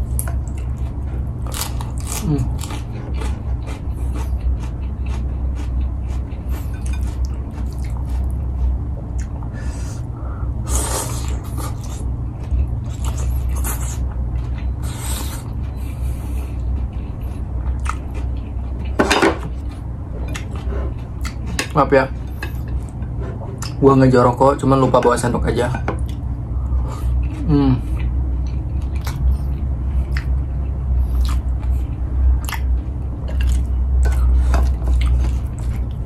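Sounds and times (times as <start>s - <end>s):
steady low hum: 0.0s - 36.0s
chewing and lip smacking: 0.1s - 9.5s, 11.1s - 21.6s, 27.2s - 36.0s.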